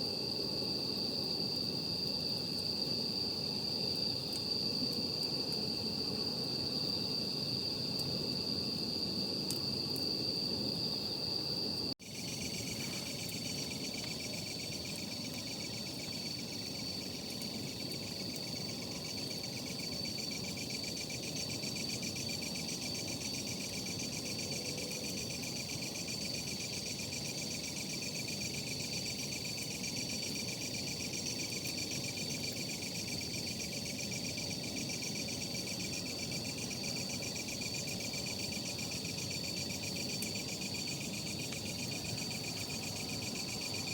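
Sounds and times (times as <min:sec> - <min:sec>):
night insects trilling: 0:00.0 - 0:43.9
campfire crackling: 0:00.3 - 0:08.4, 0:12.0 - 0:21.6.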